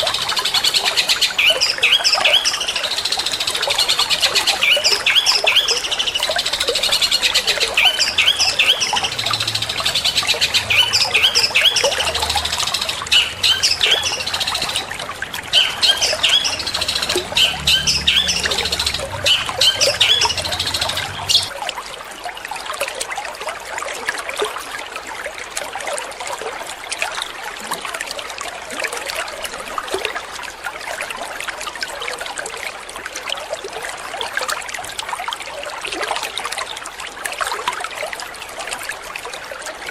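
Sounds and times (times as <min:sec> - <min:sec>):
water trickling: 0:00.0 - 0:39.9
bird singing sharp high calls: 0:15.5 - 0:21.5.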